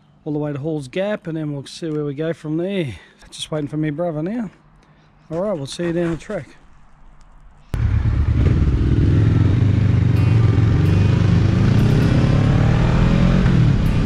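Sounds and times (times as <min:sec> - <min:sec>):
motorcycle engine accelerating: 0:07.8 - 0:14.0.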